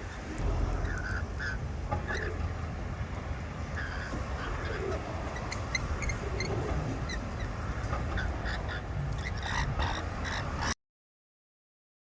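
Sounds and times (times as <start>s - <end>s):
low rumble: 0.0s - 9.8s
lorikeets chirping: 3.7s - 10.7s.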